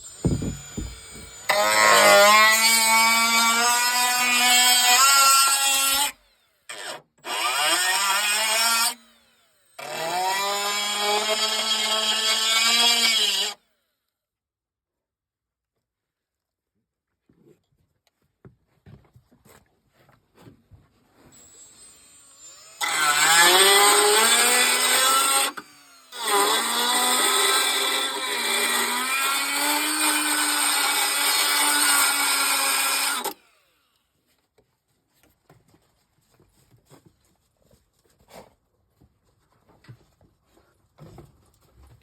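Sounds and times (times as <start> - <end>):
power tool motor whining: 0.0 - 13.6, 21.3 - 33.8.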